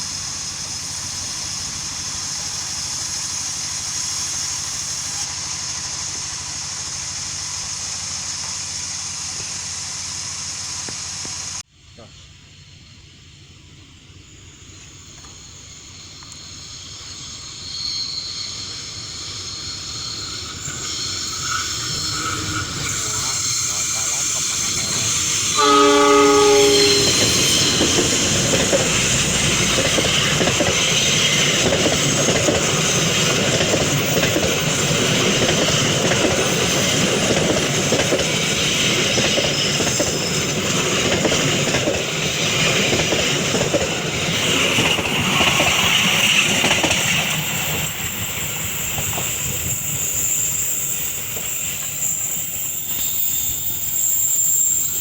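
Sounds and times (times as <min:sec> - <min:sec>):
train wheels on rails: 0:00.0 - 0:55.0
train horn: 0:25.4 - 0:29.8.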